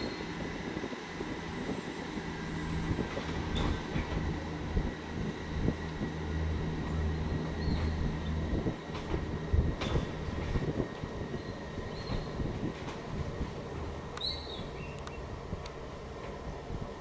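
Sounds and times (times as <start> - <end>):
diesel train engine drone: 0.0 - 17.0
faint clicks: 14.9 - 15.8.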